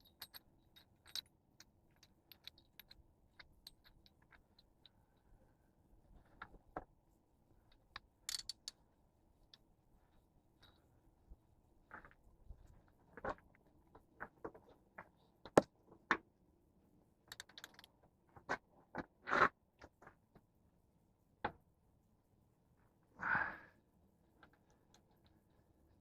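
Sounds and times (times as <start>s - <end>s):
hand tools and metal parts clicking: 0.0s - 5.3s, 7.7s - 8.8s, 17.3s - 18.0s.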